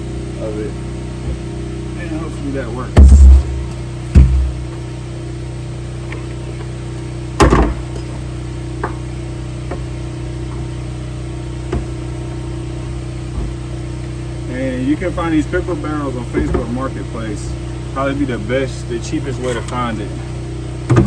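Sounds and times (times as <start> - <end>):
steady mechanical hum: 0.0 - 21.0
loud knock: 3.0 - 4.8.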